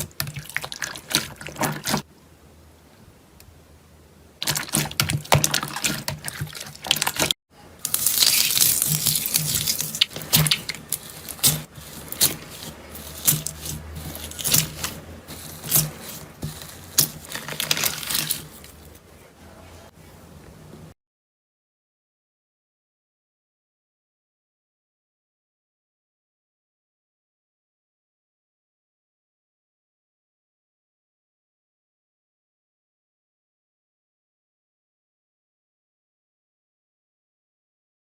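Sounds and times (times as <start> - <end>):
slime squishing with clicks: 4.4 - 18.8.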